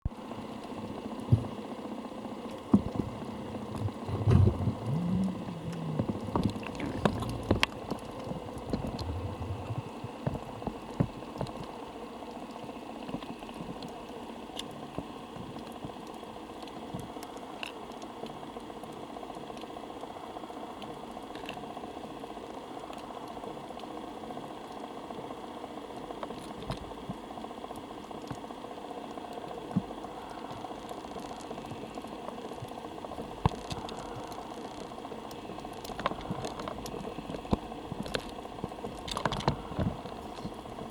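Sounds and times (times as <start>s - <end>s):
crackles and sharp clicks: 0.1s - 40.9s
low bumps: 3.7s - 9.9s.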